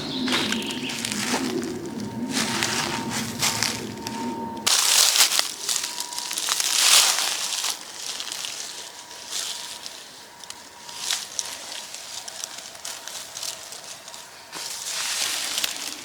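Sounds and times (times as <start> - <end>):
low background rumble: 0.0 - 4.7
crunching and crackling: 0.0 - 16.0.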